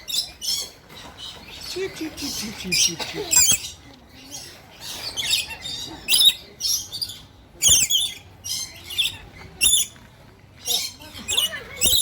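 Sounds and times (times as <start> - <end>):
parrots chirping and squawking: 0.0 - 12.0.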